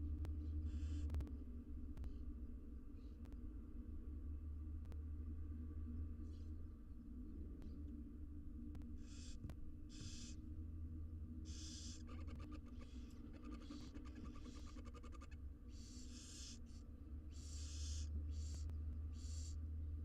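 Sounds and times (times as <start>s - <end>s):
low electrical hum: 0.0s - 20.0s
owl nestlings hissing calls: 9.0s - 9.3s, 11.5s - 12.2s, 12.8s - 19.6s.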